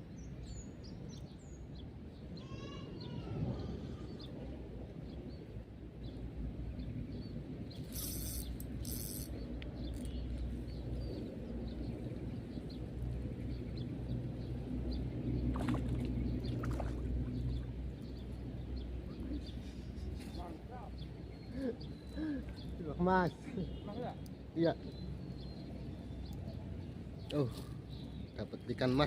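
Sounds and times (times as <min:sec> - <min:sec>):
short hissing bursts: 0:07.8 - 0:09.3.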